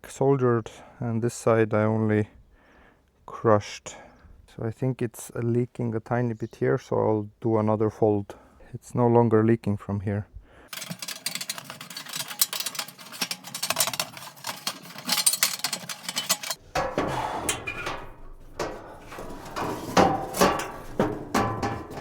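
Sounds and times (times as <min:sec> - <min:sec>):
metal pipe knocking and clattering: 0:10.7 - 0:22.0.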